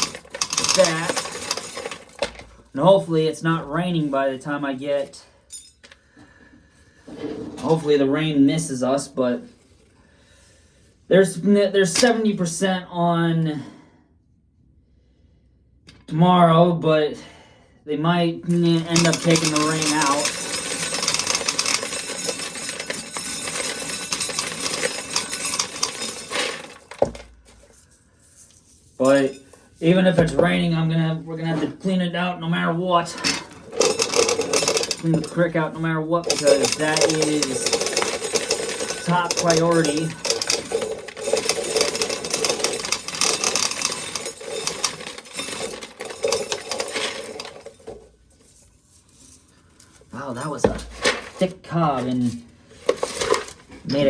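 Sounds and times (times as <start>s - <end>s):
corn kernels rattling off cob: 0.0s - 2.4s, 18.5s - 27.7s, 33.2s - 35.6s, 36.2s - 48.1s.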